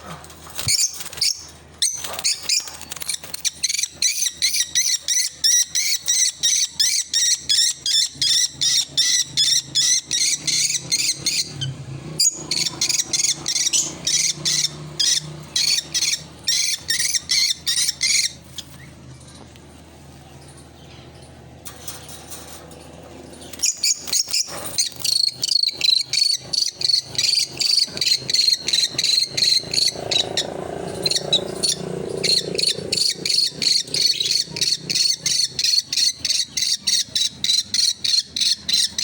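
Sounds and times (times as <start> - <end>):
lovebird chirping: 12.2 - 19.0, 23.4 - 39.0.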